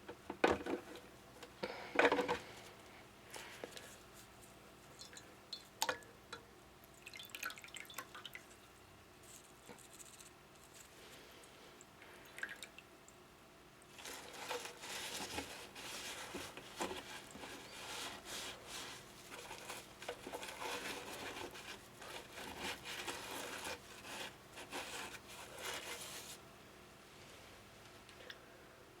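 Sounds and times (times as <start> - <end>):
water dripping and splashing: 6.9 - 8.7.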